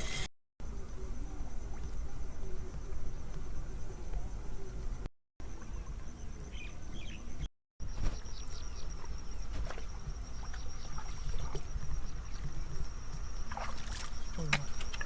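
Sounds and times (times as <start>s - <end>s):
insect trilling: 7.9s - 15.0s.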